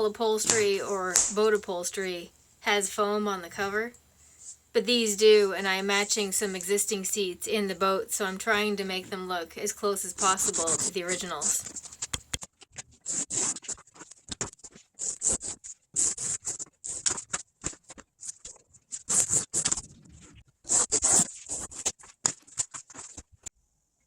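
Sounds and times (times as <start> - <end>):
scratchy strokes on upholstery: 12.9 - 17.1.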